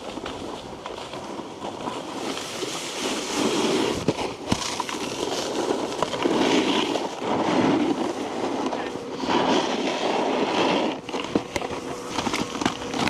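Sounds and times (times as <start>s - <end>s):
snowboard scraping icy snow: 0.0s - 13.0s.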